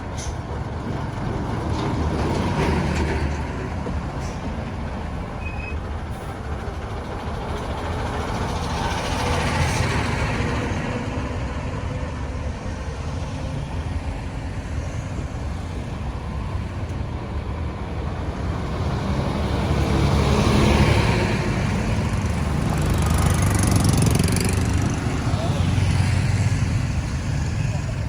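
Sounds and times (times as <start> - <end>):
tyres on the road: 0.0 - 28.0
vehicle engines running: 0.0 - 28.0
vehicle passing close: 18.3 - 28.0.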